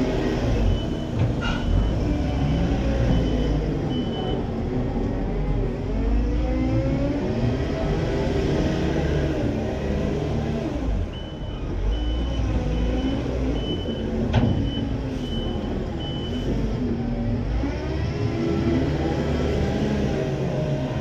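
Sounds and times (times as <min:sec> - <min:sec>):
reversing alarm beeps: 0:00.6 - 0:04.4, 0:11.1 - 0:16.5.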